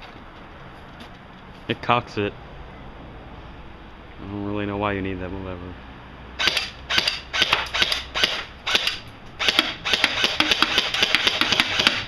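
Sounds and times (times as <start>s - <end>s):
gun cocking and firing clacks: 6.4s - 12.0s.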